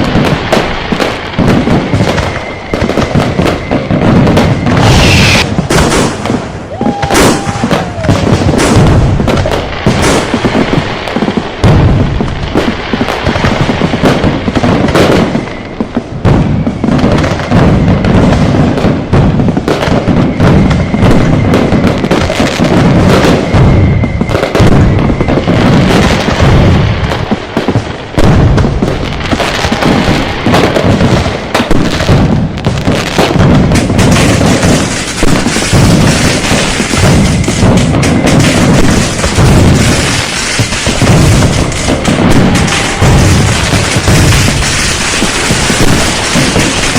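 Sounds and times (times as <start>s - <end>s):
firecracker and fireworks blasts: 0.0s - 46.9s
faint high whistling tone: 2.1s - 5.5s.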